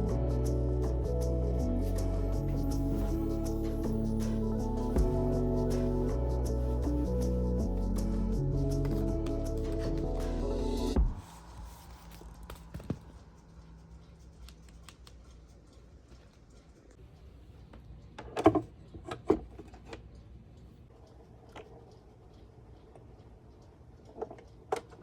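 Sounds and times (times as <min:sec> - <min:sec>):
background music: 0:00.0 - 0:13.8.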